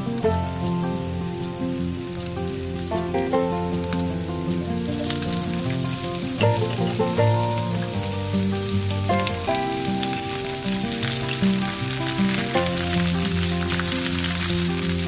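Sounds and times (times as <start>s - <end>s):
background music sustained chords: 0.0s - 15.0s
food sizzling in a pan: 0.0s - 15.0s.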